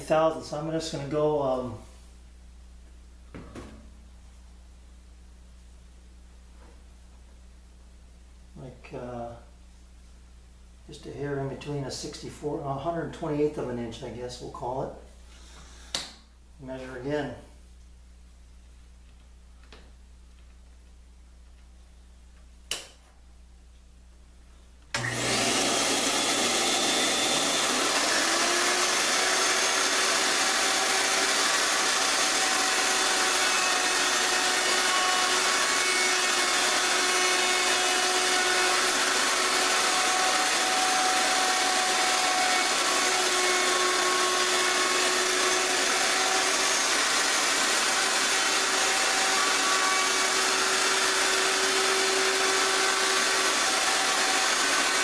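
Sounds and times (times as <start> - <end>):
power tool motor spinning: 25.0 - 55.0.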